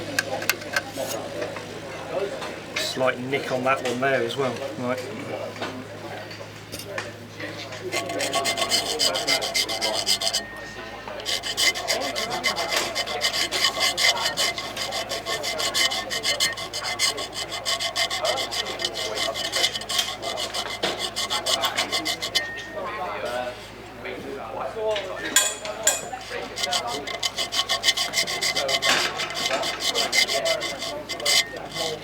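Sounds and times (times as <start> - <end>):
hand file rasping on metal: 7.6 - 23.5, 25.4 - 32.0.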